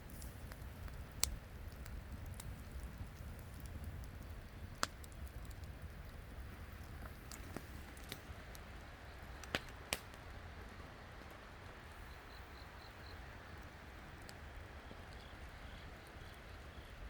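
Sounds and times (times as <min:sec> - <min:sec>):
sharp fire pops: 0:00.0 - 0:10.4
campfire crackling: 0:00.0 - 0:17.0
low steady hiss: 0:00.0 - 0:17.0.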